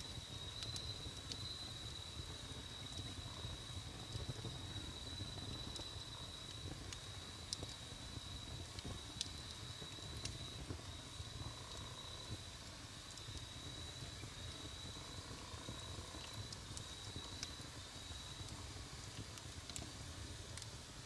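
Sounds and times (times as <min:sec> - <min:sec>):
campfire crackling and popping: 0:06.5 - 0:20.8.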